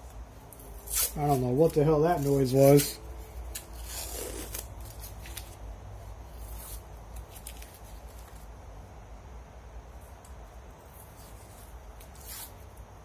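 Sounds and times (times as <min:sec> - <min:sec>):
low steady hum: 0:00.0 - 0:13.0
tape peeling off wood: 0:00.5 - 0:05.6, 0:11.0 - 0:12.7.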